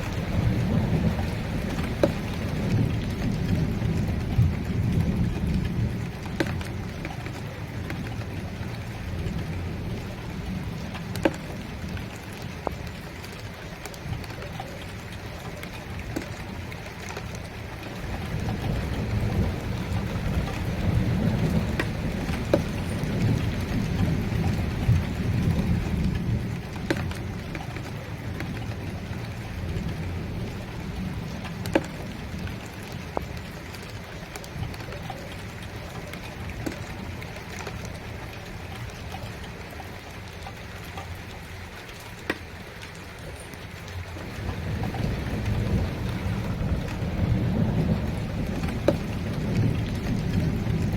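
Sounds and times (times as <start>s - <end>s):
rolling thunder: 0.0s - 12.2s, 17.9s - 26.7s, 44.2s - 50.9s
raindrops ticking on a surface: 0.0s - 50.9s
steady rain: 0.0s - 50.9s.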